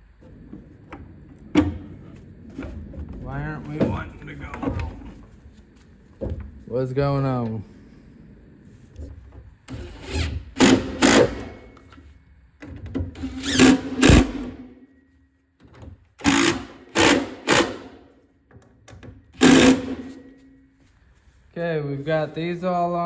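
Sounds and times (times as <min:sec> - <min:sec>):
cordless drill motor whirring: 0:09.7 - 0:11.5, 0:13.2 - 0:14.5, 0:16.2 - 0:17.8, 0:19.4 - 0:20.0.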